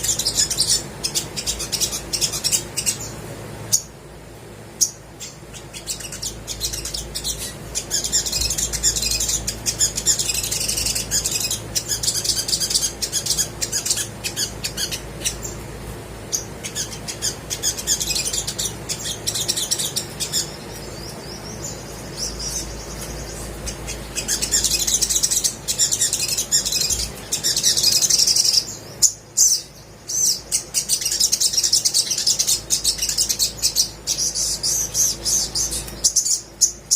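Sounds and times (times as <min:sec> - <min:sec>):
bird chirping and twittering: 0:00.0 - 0:36.9.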